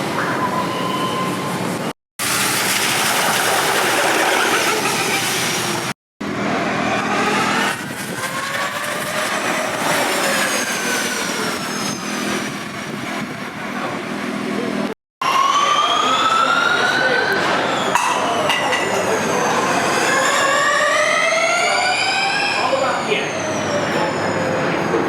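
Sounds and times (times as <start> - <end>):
electric race car motor whine: 6.5 - 12.6.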